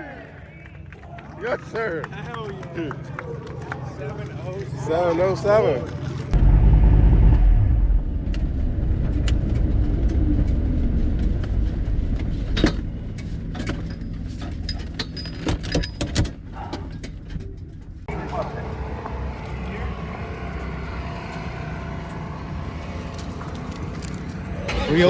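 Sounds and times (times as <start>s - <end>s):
car engine at full throttle: 6.2s - 13.3s, 18.1s - 25.0s
sharp clicks and rattles: 21.9s - 25.0s.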